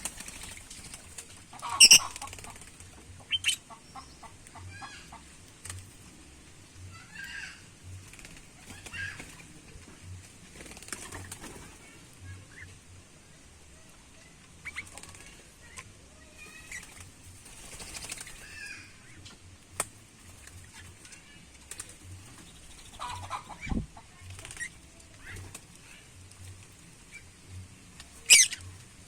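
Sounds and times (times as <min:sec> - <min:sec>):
bird wings flapping: 0:00.0 - 0:03.4, 0:05.6 - 0:06.0, 0:08.0 - 0:12.0, 0:14.7 - 0:15.4, 0:16.6 - 0:18.9, 0:19.8 - 0:26.8.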